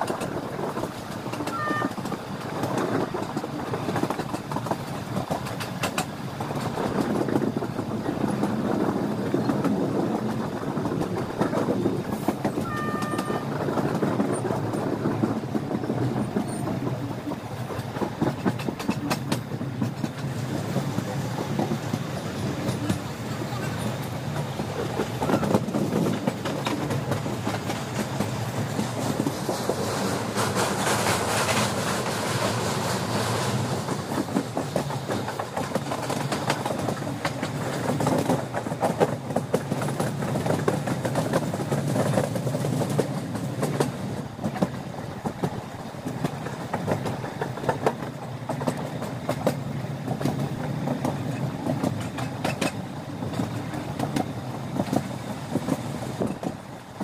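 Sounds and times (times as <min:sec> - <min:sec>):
train running rumble: 0:00.0 - 0:57.0
wheels clacking over rail joints: 0:00.0 - 0:57.0.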